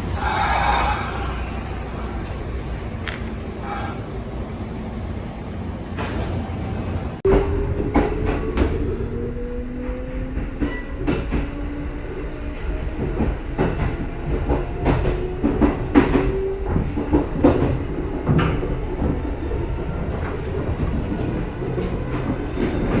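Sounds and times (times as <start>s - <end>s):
wheels clacking over rail joints: 0.0s - 4.9s
train traction motors whining: 0.0s - 6.9s.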